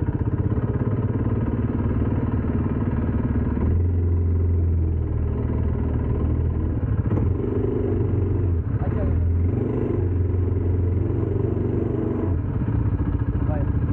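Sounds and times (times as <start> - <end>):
quad bike engine idling: 0.0 - 13.9
people talking: 8.8 - 9.4, 13.3 - 13.7.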